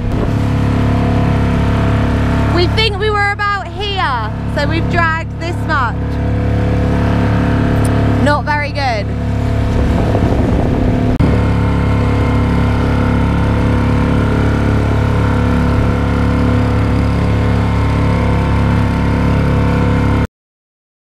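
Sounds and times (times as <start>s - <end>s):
outboard motor running: 0.0s - 20.3s.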